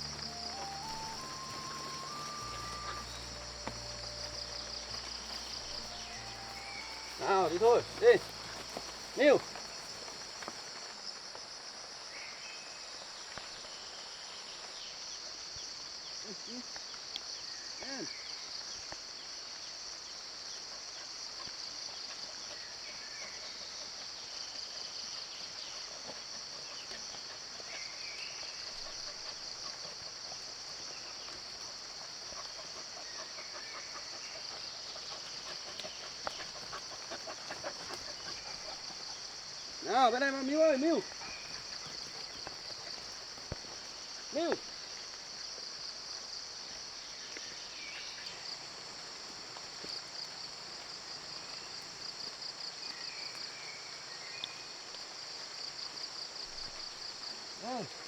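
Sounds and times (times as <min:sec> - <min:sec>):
faint short calls: 0:00.0 - 0:10.5
crickets and insects trilling: 0:00.0 - 0:58.0.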